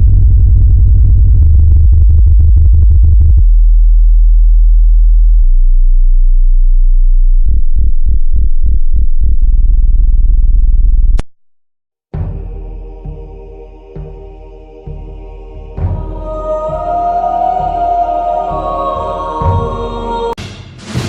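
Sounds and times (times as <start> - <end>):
deep synthesized bass tones: 0.0 - 11.2.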